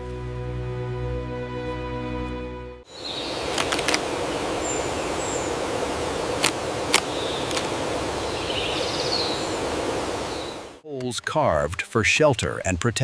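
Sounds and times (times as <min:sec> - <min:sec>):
forest ambience hiss: 0:02.9 - 0:10.8
faint high bird chirps: 0:08.2 - 0:10.6.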